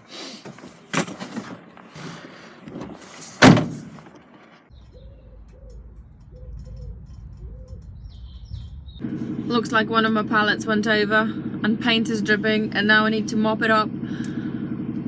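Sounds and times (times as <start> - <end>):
loud bang: 3.4 - 3.9
steady low rumble: 4.7 - 15.0.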